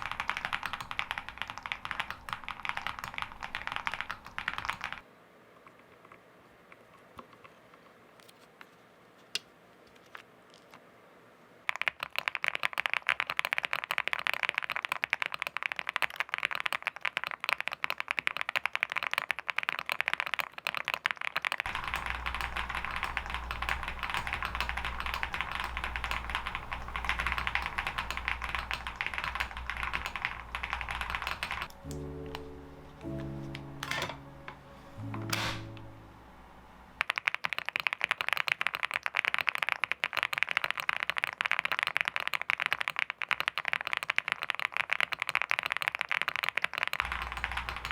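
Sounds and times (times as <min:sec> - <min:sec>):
rapid keyboard key clicks: 0:00.0 - 0:05.0, 0:11.6 - 0:32.4, 0:37.0 - 0:47.9
steady low hum: 0:21.7 - 0:37.0
music: 0:31.7 - 0:36.7.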